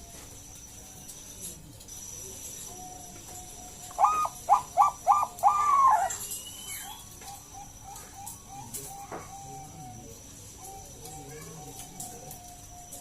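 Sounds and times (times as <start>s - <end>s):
dove cooing phrase: 3.8s - 6.3s, 6.9s - 12.4s.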